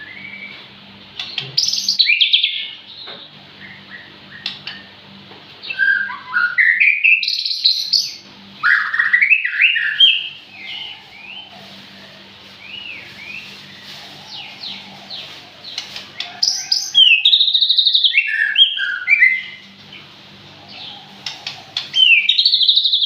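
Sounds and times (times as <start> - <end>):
songbird singing whistled phrases: 0.0 - 0.6, 1.6 - 2.8, 5.6 - 11.4, 16.4 - 19.6, 21.9 - 23.0.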